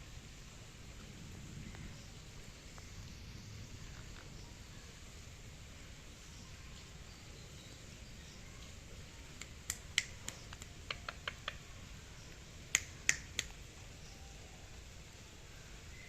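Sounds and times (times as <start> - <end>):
sharp clicks: 9.4 - 11.6, 12.7 - 13.6.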